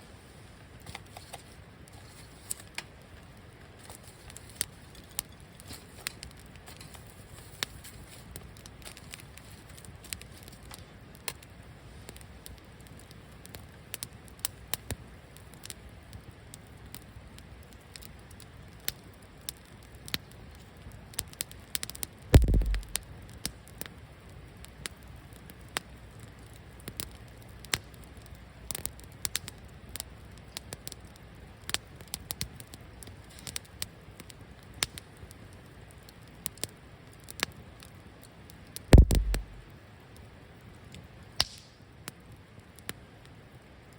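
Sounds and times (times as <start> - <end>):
wood fire crackling and popping: 0.2 - 43.9
heavy thumps: 22.4 - 23.0, 39.0 - 39.7.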